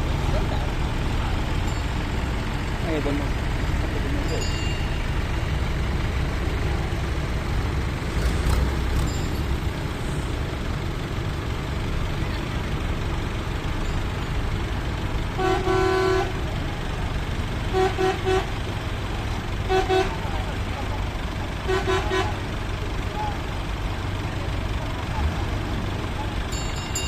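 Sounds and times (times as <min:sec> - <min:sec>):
low engine rumble: 0:00.0 - 0:27.0
vehicle horn: 0:15.4 - 0:16.5, 0:17.6 - 0:18.7, 0:19.6 - 0:20.5, 0:21.6 - 0:22.4.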